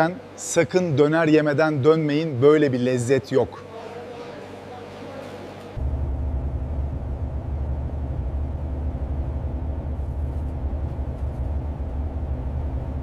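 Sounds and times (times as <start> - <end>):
engine and road noise rumble: 5.8 - 13.0.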